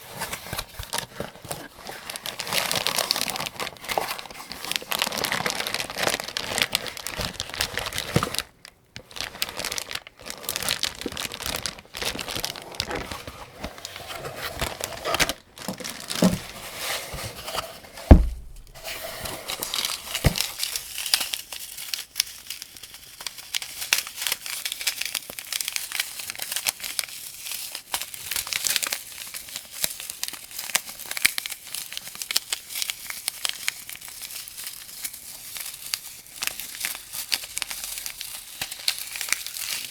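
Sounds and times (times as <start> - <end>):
heavy thump: 18.0 - 19.1.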